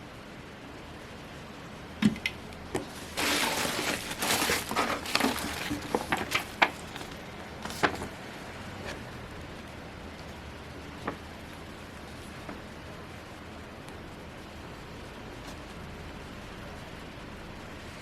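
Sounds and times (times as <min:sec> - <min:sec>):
packaging rustling: 0:02.8 - 0:08.2.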